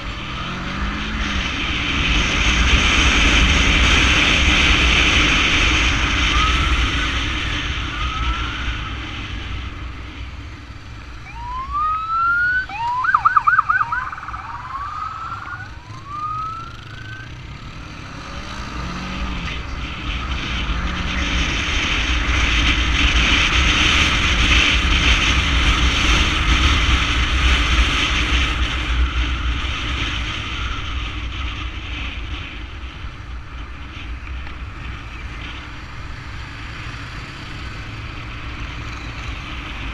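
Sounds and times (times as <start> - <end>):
motorcycle engines: 0.0 - 39.9
emergency sirens whooping: 5.6 - 10.0, 11.1 - 17.6.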